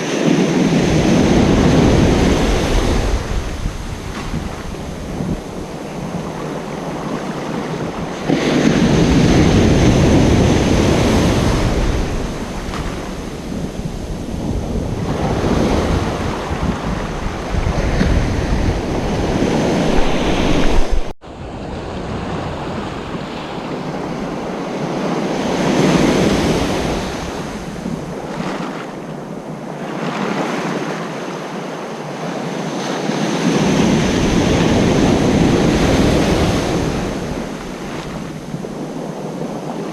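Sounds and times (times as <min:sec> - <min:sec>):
wind rumbling on microphone: 0:00.0 - 0:31.1, 0:32.0 - 0:39.9
ocean surf breaking on beach: 0:00.0 - 0:39.9.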